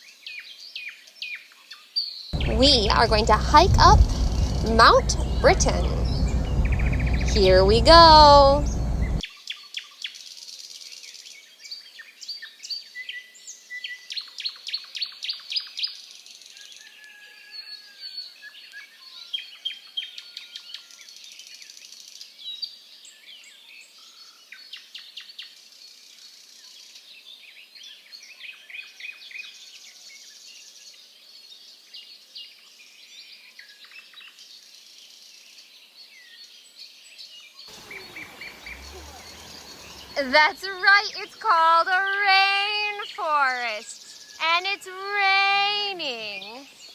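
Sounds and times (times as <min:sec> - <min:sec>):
birds chirping and trilling: 0:02.4 - 0:09.2, 0:37.7 - 0:44.4.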